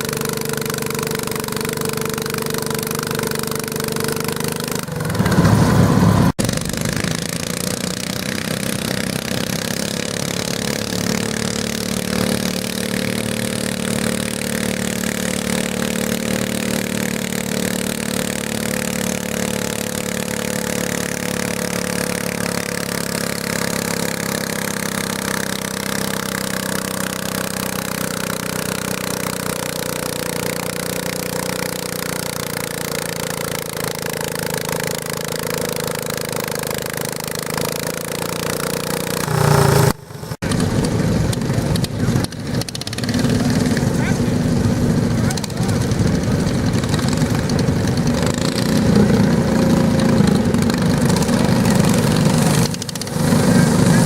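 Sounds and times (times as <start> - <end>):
garden tractor engine running: 0.0 - 54.0
loud rush of noise: 39.0 - 41.5.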